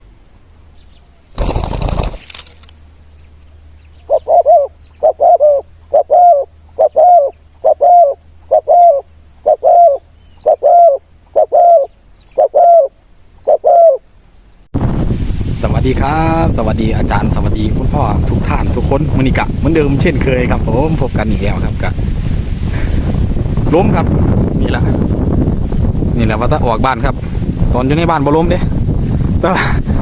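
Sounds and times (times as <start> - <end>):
wind noise on microphone: 1.4 - 2.7, 14.8 - 30.0
dove cooing: 3.9 - 14.1.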